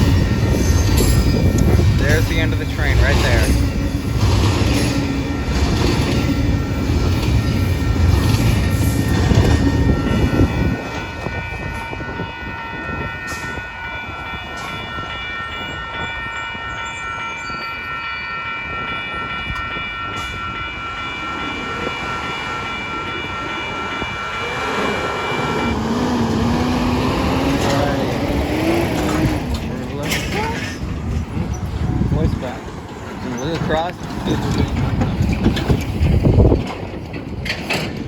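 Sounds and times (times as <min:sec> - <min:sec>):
freight train rumble: 0:00.0 - 0:38.0
road vehicle speeding up: 0:24.6 - 0:29.8.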